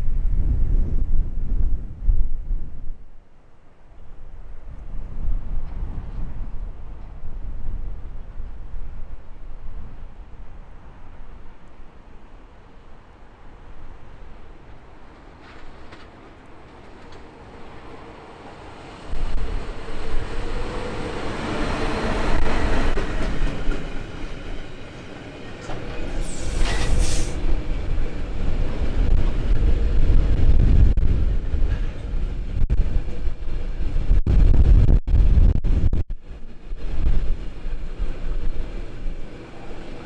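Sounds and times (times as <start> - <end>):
electric locomotive humming: 10.2 - 33.9
train wheels rumbling: 13.8 - 34.1.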